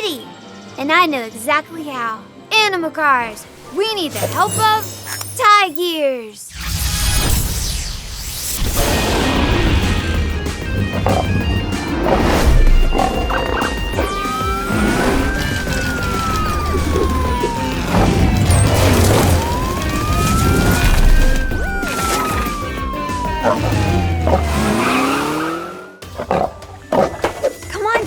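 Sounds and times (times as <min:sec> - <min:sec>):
lively background music: 0:00.0 - 0:06.4, 0:09.2 - 0:25.2, 0:26.0 - 0:28.0
police car siren wailing: 0:12.8 - 0:26.0.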